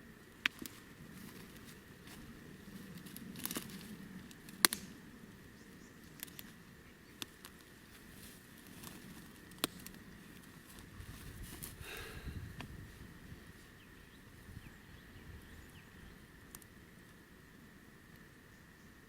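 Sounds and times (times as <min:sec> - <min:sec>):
sharp snaps and crackles: 0:00.3 - 0:05.1, 0:06.0 - 0:12.8, 0:16.4 - 0:17.2.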